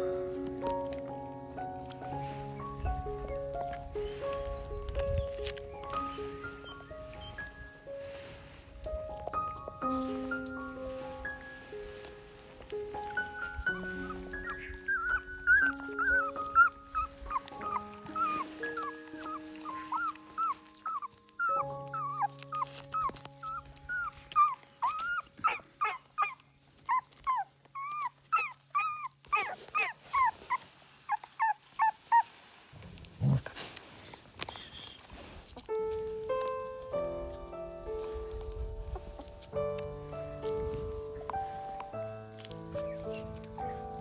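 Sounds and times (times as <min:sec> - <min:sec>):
gentle background music: 0:00.0 - 0:44.0
puppies whimpering: 0:01.8 - 0:07.8, 0:12.6 - 0:32.3, 0:38.4 - 0:44.0.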